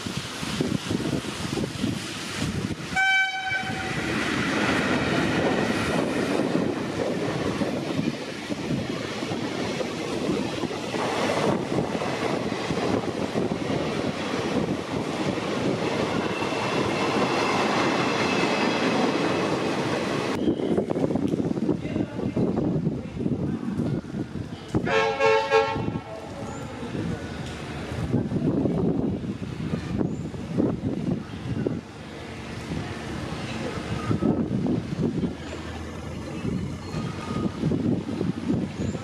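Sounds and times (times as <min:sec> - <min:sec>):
train horn blast: 0:02.9 - 0:04.0, 0:24.8 - 0:26.1.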